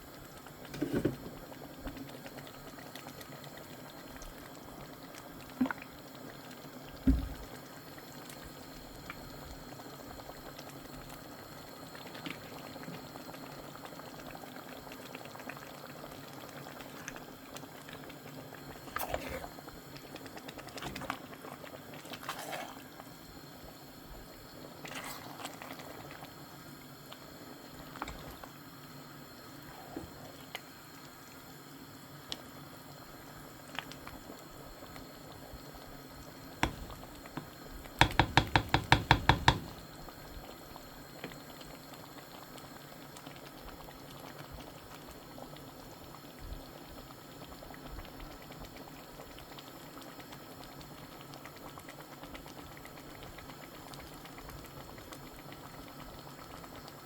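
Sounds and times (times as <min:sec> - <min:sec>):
soup simmering and bubbling: 0:00.0 - 0:57.0
sharp knocks: 0:38.0 - 0:39.8.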